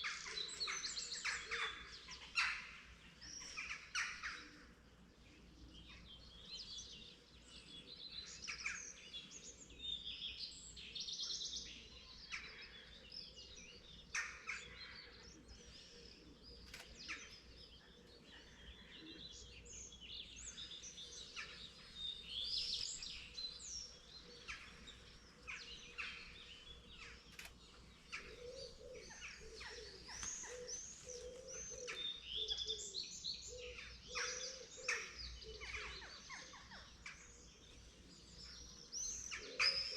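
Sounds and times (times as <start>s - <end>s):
songbirds chirping and warbling: 0.0s - 39.9s.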